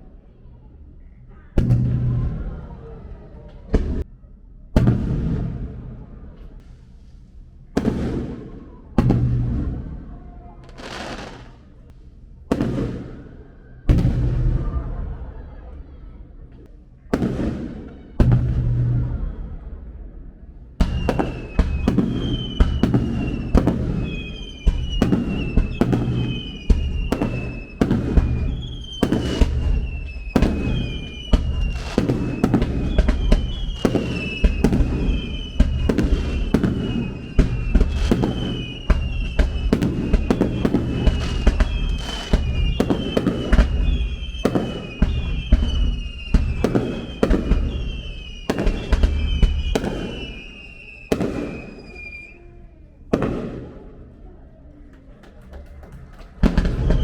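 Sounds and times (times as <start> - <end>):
fireworks bangs and booms: 1.5 - 4.1, 4.7 - 15.8, 16.5 - 52.4, 53.1 - 54.3, 55.0 - 57.0
high falling whistle: 20.8 - 52.6.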